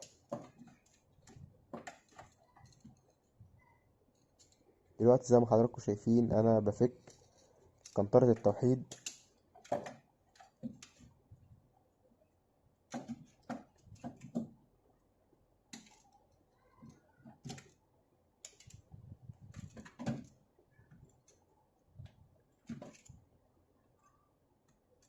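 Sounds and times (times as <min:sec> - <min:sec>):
small clicks and taps of hand tools: 0:04.1 - 0:04.7, 0:07.0 - 0:11.1, 0:15.7 - 0:17.8, 0:18.4 - 0:18.9.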